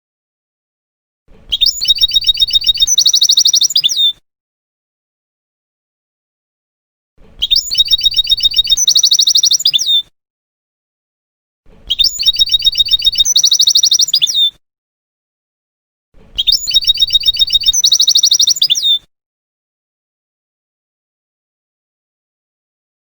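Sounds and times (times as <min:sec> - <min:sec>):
goldfinch song: 0:01.4 - 0:04.2, 0:07.4 - 0:10.1, 0:11.8 - 0:14.6, 0:16.3 - 0:19.0.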